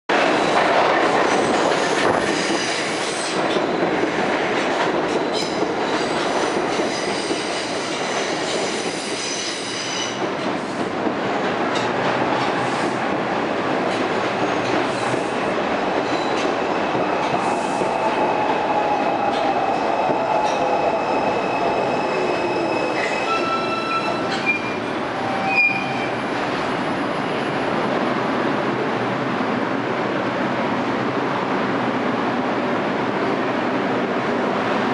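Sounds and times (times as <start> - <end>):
train rumbling: 0.1 - 34.9
train wheels squealing: 6.8 - 10.2, 20.5 - 26.2.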